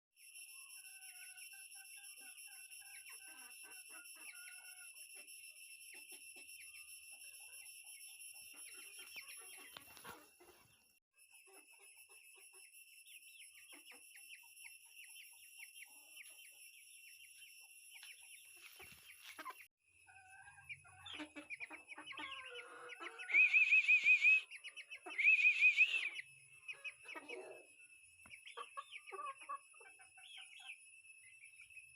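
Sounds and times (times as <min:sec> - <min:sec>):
faint chirps: 0:00.2 - 0:31.9
birds calling: 0:21.0 - 0:27.6
loud warbling bird calls: 0:22.6 - 0:26.2.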